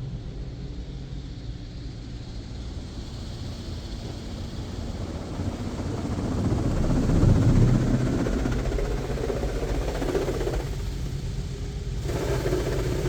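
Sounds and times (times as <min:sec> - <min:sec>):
car wash spraying water: 0:12.0 - 0:13.0.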